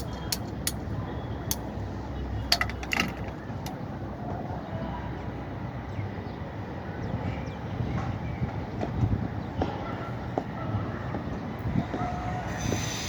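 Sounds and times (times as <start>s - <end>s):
metallic clicks of tools handled: 0.0s - 0.8s, 2.5s - 3.8s.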